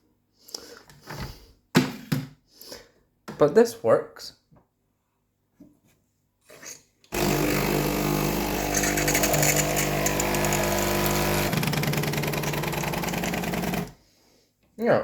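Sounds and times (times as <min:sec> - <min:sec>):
espresso machine pump buzzing: 0:07.1 - 0:13.9.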